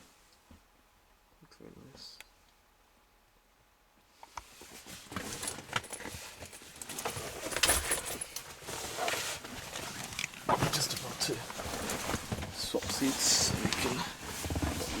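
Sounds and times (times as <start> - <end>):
rustling and knocks in car seat: 4.4 - 15.0.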